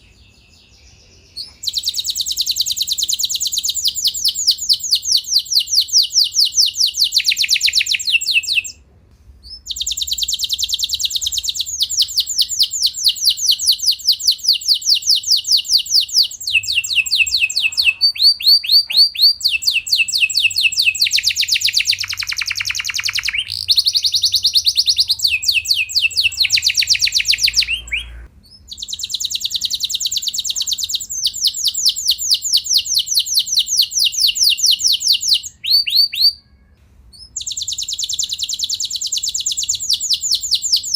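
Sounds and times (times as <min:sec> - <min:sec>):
canary singing trills: 0:00.0 - 0:08.8, 0:09.4 - 0:40.9.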